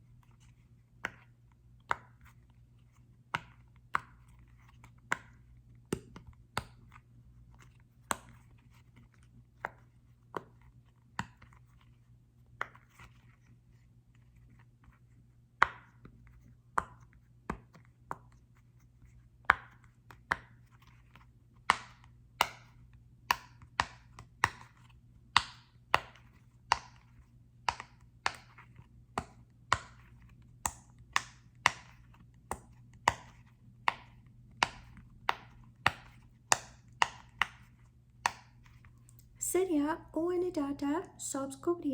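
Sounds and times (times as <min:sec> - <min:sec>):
sharp taps on small ball: 0:01.0 - 0:02.4, 0:04.9 - 0:07.0, 0:15.6 - 0:18.4, 0:19.4 - 0:20.8, 0:21.6 - 0:39.3.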